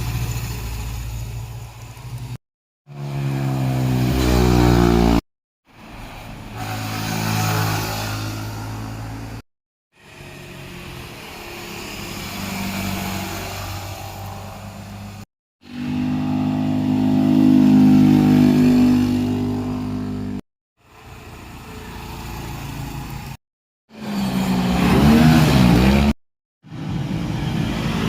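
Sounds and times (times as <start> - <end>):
motorcycles passing by: 2.9 - 5.2, 10.1 - 20.4.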